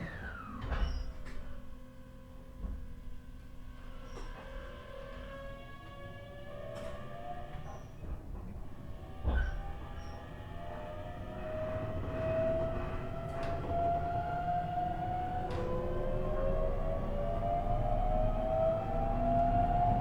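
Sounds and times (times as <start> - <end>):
electric train motor whine: 8.8 - 20.0.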